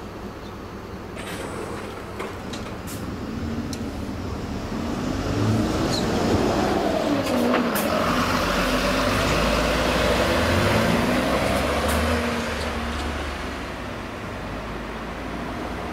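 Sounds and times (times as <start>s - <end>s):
diesel locomotive passing: 1.2s - 15.9s.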